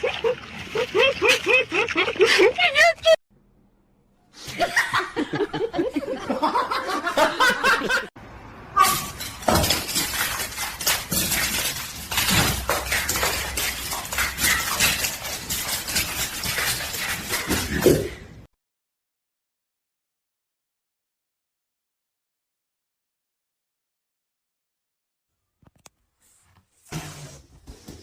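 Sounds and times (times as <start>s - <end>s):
person laughing: 0.0s - 3.2s.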